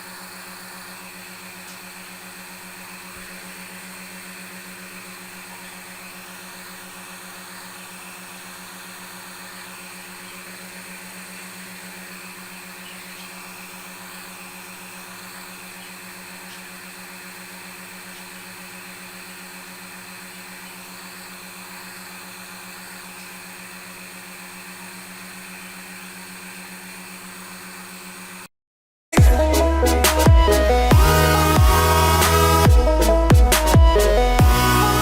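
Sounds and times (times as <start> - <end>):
sewing machine motors humming: 29.2 - 35.0.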